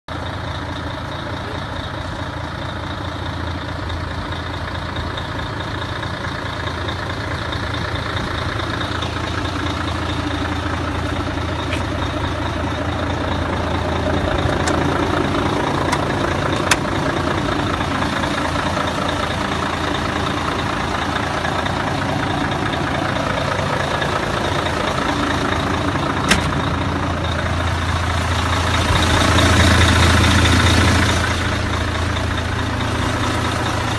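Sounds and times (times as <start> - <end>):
diesel truck engine idling: 0.1 - 33.9
sharp clicks: 15.7 - 17.0.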